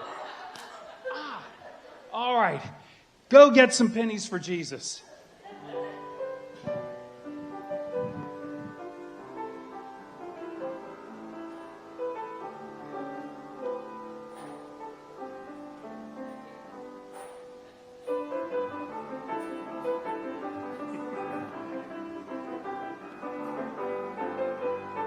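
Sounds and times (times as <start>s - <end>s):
slow piano music: 5.6s - 25.0s.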